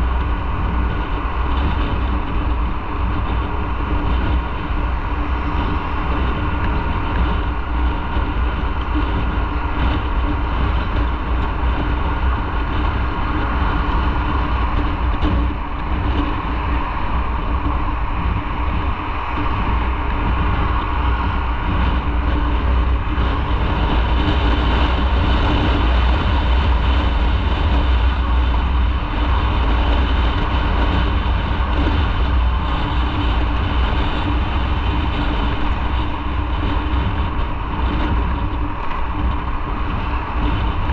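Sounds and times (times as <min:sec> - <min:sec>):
low rumble: 0:00.0 - 0:40.9.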